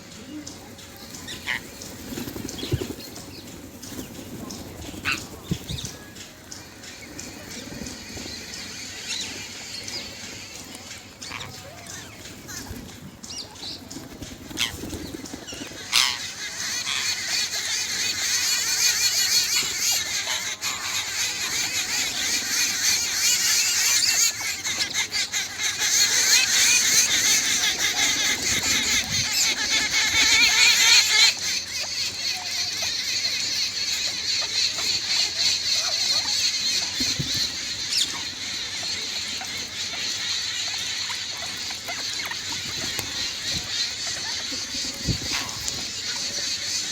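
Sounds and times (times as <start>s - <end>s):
parrots chattering: 14.5s - 46.9s.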